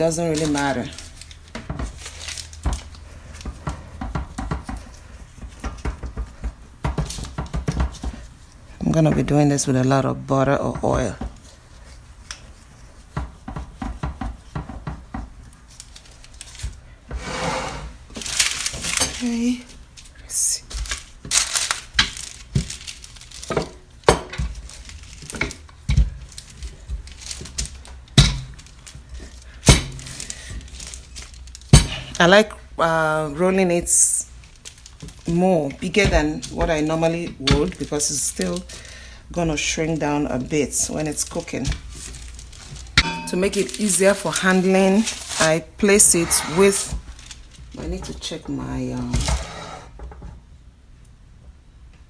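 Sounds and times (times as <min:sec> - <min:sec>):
kitchen knocks and clatter: 0:00.0 - 0:08.2, 0:13.1 - 0:15.4, 0:20.8 - 0:29.0, 0:42.6 - 0:45.6
kitchen taps and clicks: 0:03.4 - 0:04.9, 0:05.6 - 0:08.2, 0:13.2 - 0:15.3.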